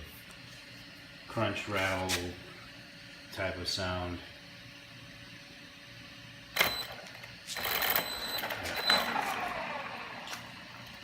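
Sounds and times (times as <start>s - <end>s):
falling whine: 7.8s - 11.0s.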